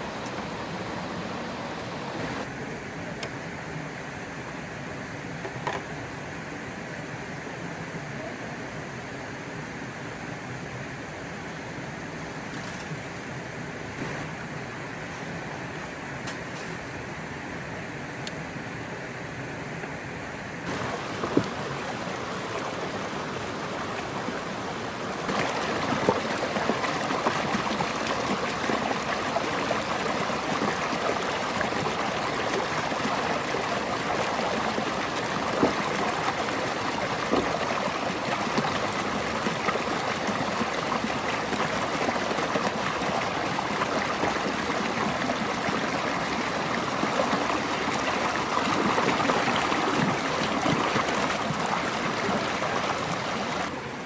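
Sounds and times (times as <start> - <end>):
flowing water rushing: 0.0 - 2.5, 20.6 - 54.0.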